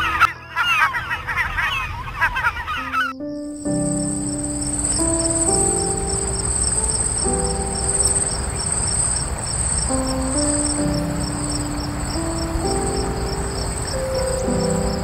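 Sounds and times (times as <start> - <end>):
slow background music: 2.9 - 15.0
high-pitched insect trill: 3.5 - 15.0.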